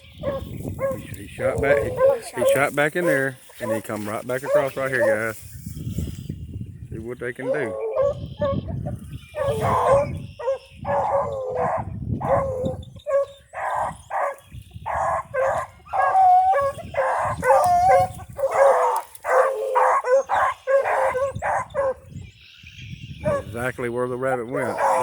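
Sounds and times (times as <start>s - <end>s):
dogs bawling: 0.0s - 5.3s, 7.4s - 8.7s, 9.3s - 22.1s, 23.2s - 23.6s, 24.4s - 25.0s
dogs barking: 0.0s - 5.4s, 7.4s - 22.2s, 23.2s - 23.6s, 24.2s - 25.0s.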